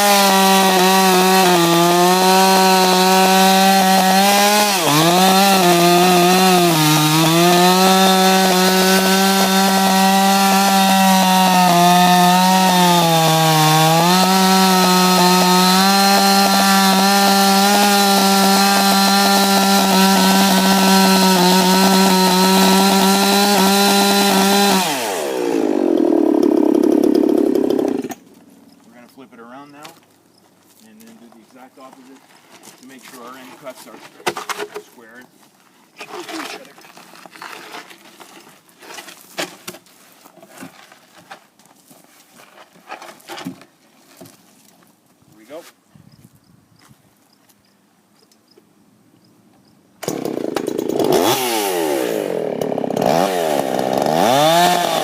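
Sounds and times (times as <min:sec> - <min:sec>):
chainsaw cutting log: 0:00.0 - 0:28.3, 0:50.0 - 0:55.0.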